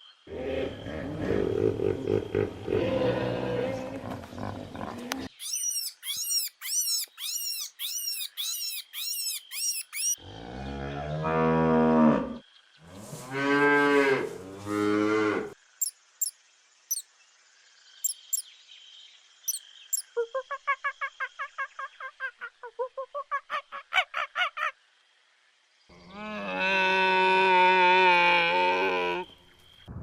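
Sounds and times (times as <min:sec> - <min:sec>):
cow mooing: 0:13.3 - 0:15.6, 0:26.1 - 0:29.3
high rapid chirps: 0:18.0 - 0:18.4.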